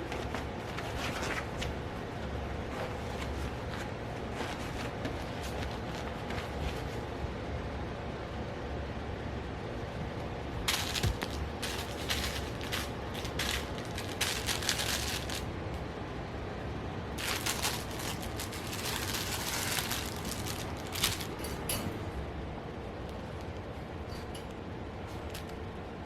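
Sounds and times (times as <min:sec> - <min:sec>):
toy rattling and clicking: 0:10.7 - 0:15.5, 0:17.2 - 0:21.9.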